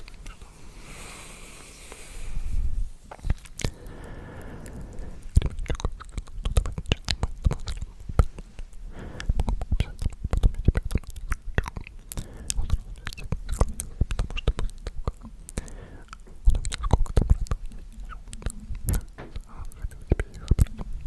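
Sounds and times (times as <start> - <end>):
wet lip and tongue clicks: 0.0 - 0.5, 3.1 - 21.0
faint whispering: 7.6 - 21.0.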